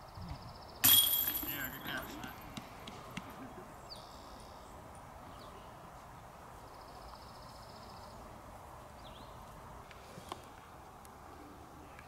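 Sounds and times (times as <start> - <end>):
background hiss: 0.0 - 12.0
small birds chirping: 1.5 - 10.5.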